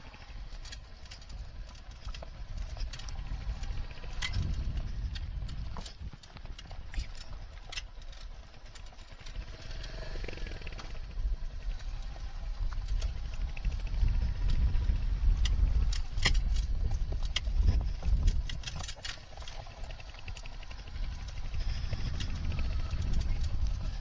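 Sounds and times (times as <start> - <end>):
motorcycle riding off: 9.1 - 24.0.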